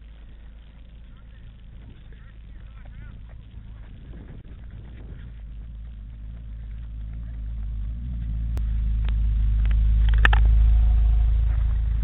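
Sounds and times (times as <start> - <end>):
sports car driving past: 1.3 - 12.0
sharp clicks: 9.0 - 10.6.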